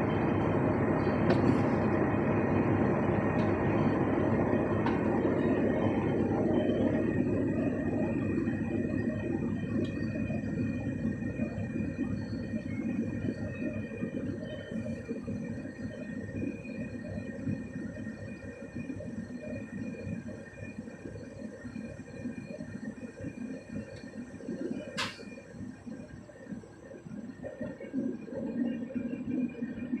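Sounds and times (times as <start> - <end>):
train wheels rumbling on rails: 0.0 - 8.2, 24.9 - 25.4.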